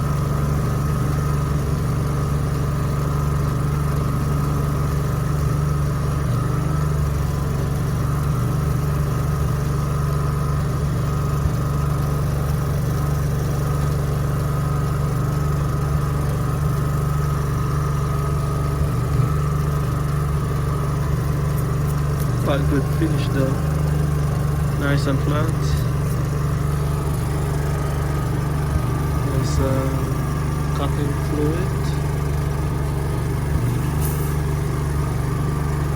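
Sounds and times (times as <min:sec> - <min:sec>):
generator engine humming: 0:00.0 - 0:35.9
faint steady whine: 0:18.3 - 0:35.9.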